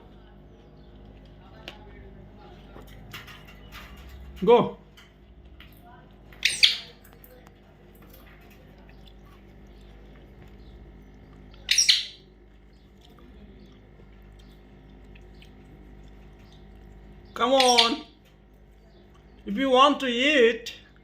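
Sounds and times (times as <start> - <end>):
parrot shrill calls: 6.4 - 6.9, 11.7 - 12.2, 17.6 - 18.1.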